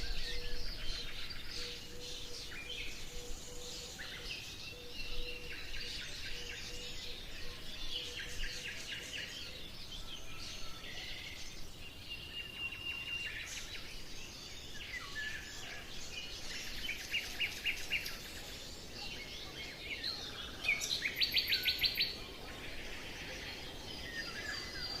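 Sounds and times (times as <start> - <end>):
birds singing: 0.0 - 25.0
steady background hiss: 0.0 - 25.0.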